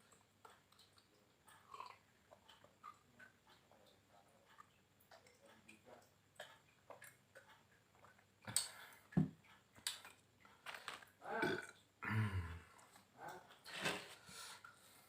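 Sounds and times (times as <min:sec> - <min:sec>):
person chewing: 0:00.0 - 0:03.6.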